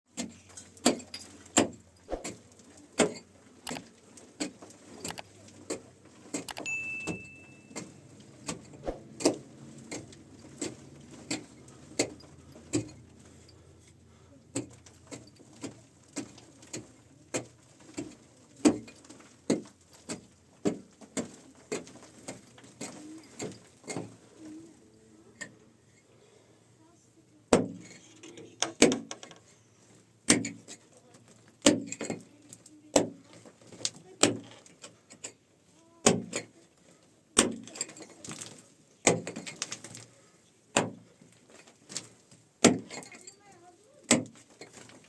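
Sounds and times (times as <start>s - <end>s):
sharp blows of a hand tool: 1.6s - 2.4s
high steady tone: 6.6s - 8.1s.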